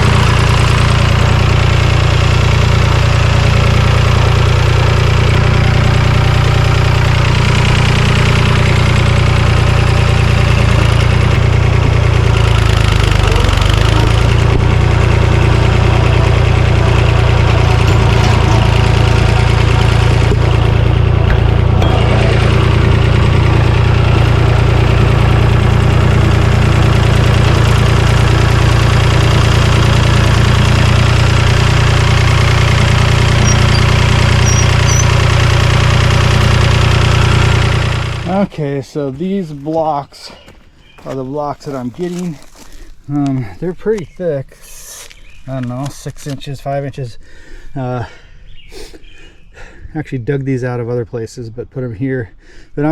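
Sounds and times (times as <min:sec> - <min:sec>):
tractor engine running loudly: 0:00.0 - 0:40.0.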